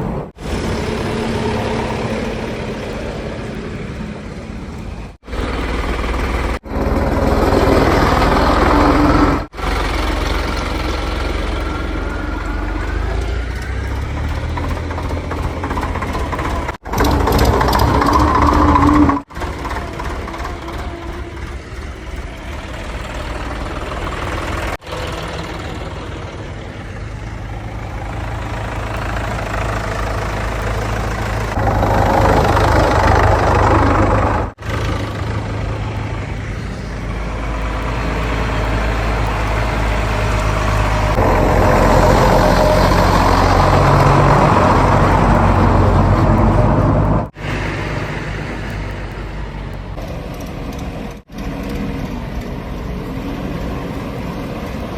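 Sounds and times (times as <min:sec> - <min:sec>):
heavy diesel engine revving: 0:00.0 - 0:52.4.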